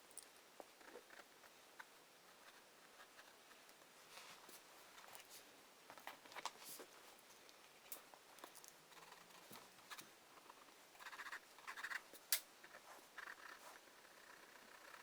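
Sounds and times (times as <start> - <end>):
pencil scratching on paper: 11.0 - 12.0
sharp pencil ticks: 11.0 - 15.0.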